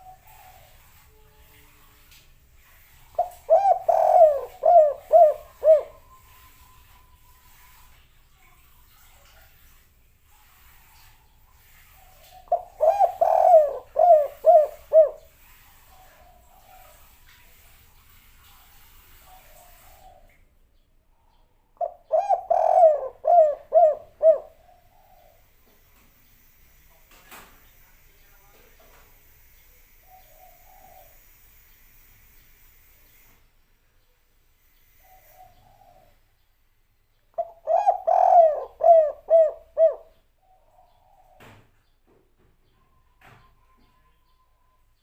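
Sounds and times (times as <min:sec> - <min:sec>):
dove cooing: 0:00.0 - 0:01.0, 0:03.1 - 0:07.7, 0:11.9 - 0:17.2, 0:21.8 - 0:25.5, 0:30.1 - 0:31.4, 0:34.9 - 0:36.2, 0:37.4 - 0:41.6.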